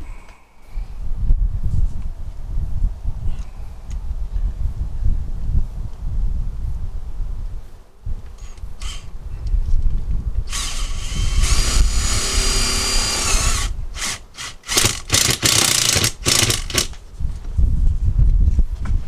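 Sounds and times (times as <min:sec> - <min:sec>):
power drill driving screws: 0:08.5 - 0:09.1, 0:10.5 - 0:17.0.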